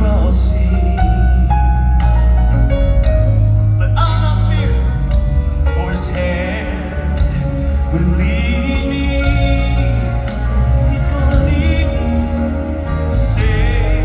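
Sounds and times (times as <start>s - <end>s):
instrumental accompaniment: 0.0s - 14.0s
male voices singing: 3.8s - 14.0s.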